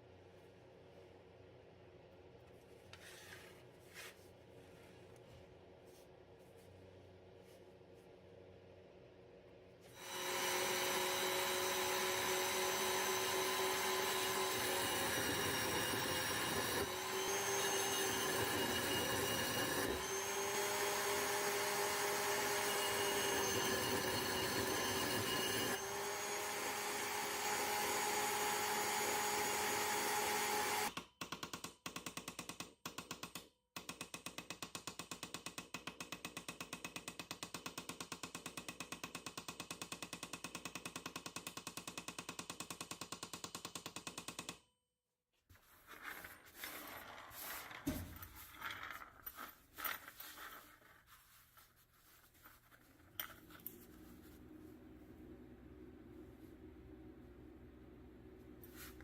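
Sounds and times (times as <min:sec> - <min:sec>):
power tool motor whine: 0:09.9 - 0:30.9
rapid pulsing tool sound: 0:09.9 - 0:30.9.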